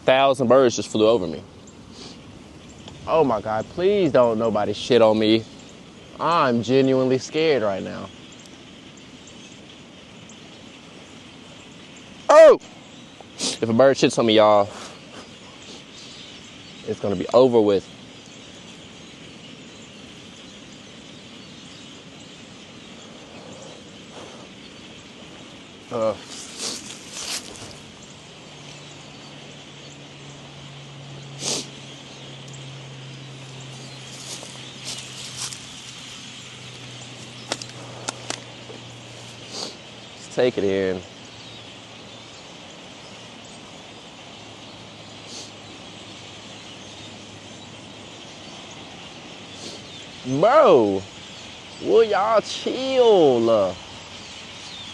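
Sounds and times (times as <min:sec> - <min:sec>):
flock of birds calling: 0:00.0 - 0:54.9
wind hiss: 0:00.0 - 0:54.9
brief high bird call: 0:12.3 - 0:12.8.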